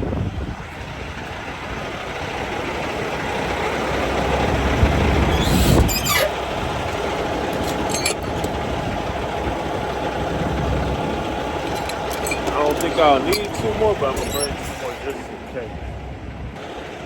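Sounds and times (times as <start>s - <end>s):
motor vehicle rumbling: 0.0s - 17.0s
sharp rattle: 5.2s - 9.0s, 11.2s - 15.2s.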